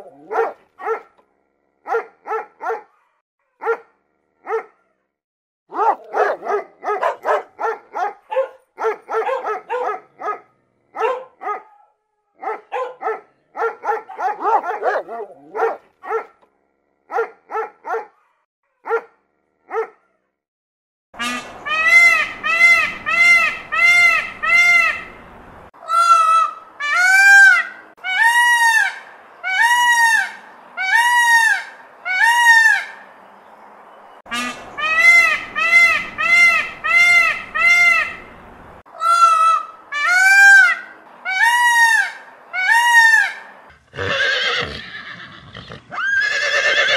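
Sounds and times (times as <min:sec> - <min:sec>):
dogs barking: 0:00.0 - 0:01.2, 0:01.8 - 0:04.8, 0:05.7 - 0:16.4, 0:17.1 - 0:20.1
peacock honking calls: 0:21.2 - 0:33.0, 0:34.3 - 0:46.9.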